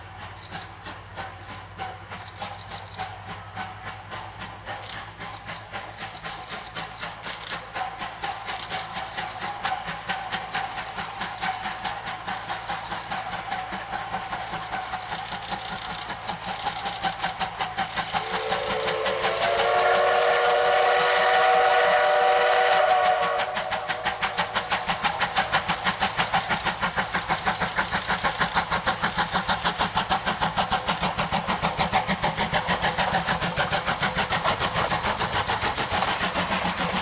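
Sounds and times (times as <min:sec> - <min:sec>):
steam locomotive exhaust chuffs: 0:00.0 - 0:37.0
steam whistle blast: 0:18.1 - 0:24.6.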